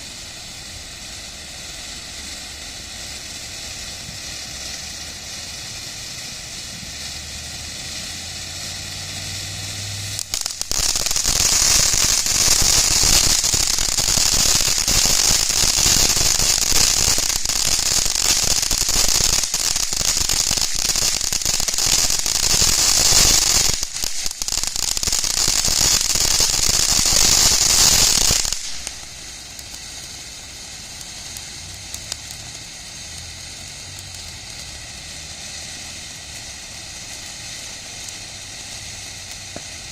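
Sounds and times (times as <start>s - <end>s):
fountain firework hissing crackle: 0.0s - 39.9s.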